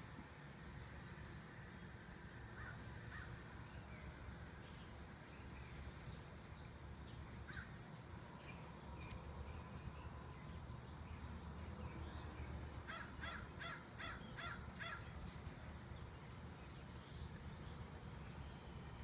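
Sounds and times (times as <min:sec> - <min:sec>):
faint low background hum: 0:00.0 - 0:19.0
bird calling: 0:12.9 - 0:15.2.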